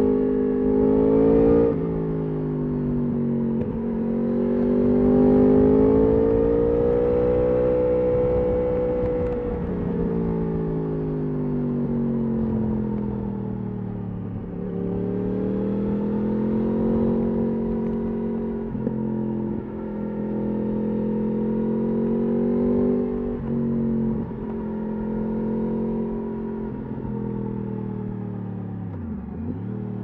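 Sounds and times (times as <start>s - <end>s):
motorcycle engine revving: 3.2s - 10.9s, 14.1s - 27.6s.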